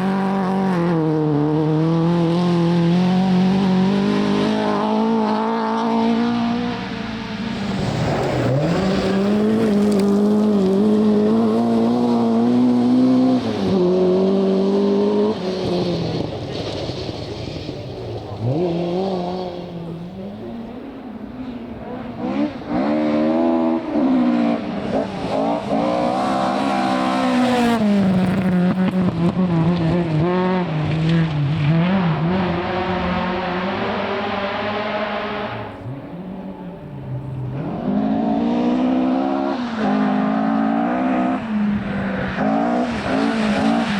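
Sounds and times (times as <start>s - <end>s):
rally car engine at high revs: 0.0s - 43.9s.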